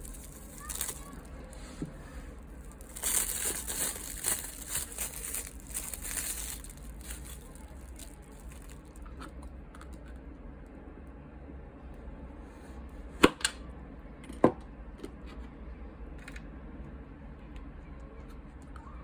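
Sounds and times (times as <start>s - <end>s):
plastic packaging rustling: 0.0s - 9.3s.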